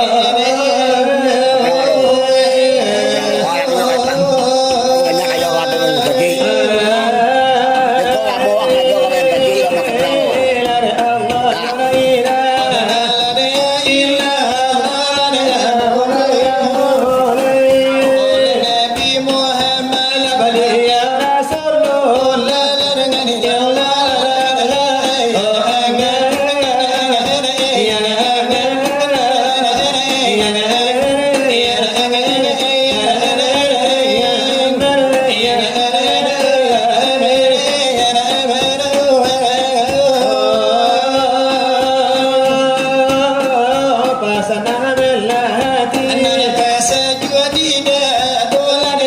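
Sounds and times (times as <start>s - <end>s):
voices singing devotional melody: 0.0s - 49.0s.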